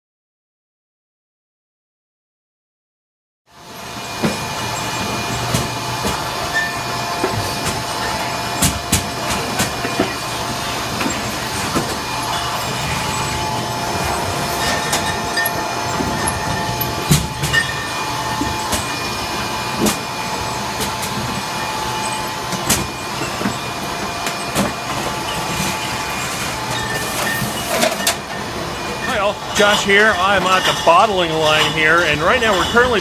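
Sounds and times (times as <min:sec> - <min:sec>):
bottling machine drone: 0:03.5 - 0:33.0
glass bottles clinking: 0:11.1 - 0:19.0, 0:26.7 - 0:33.0.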